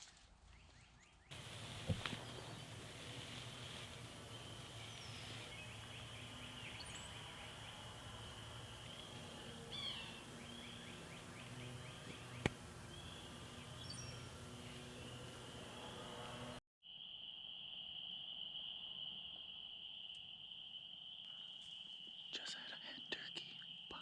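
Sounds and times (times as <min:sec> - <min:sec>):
bird chirps: 0:00.5 - 0:16.2.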